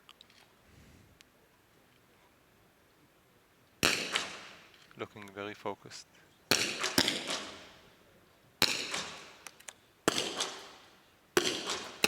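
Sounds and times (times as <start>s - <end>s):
rifle shots with echo: 3.8s - 4.7s, 6.5s - 7.9s, 8.6s - 12.0s.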